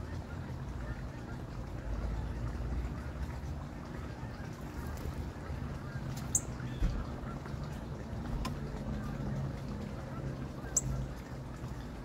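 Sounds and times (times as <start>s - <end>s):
songbird chip notes: 10.2s - 12.0s.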